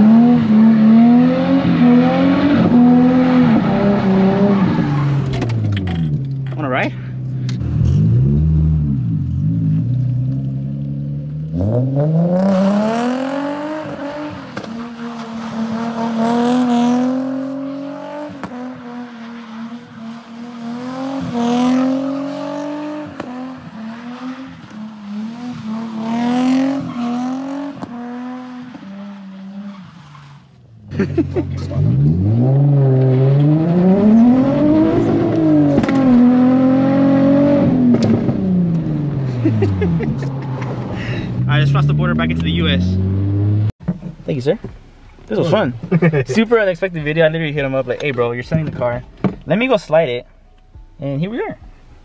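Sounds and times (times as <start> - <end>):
car engine revving: 0.0 - 50.0
tyre squeal: 21.7 - 30.6.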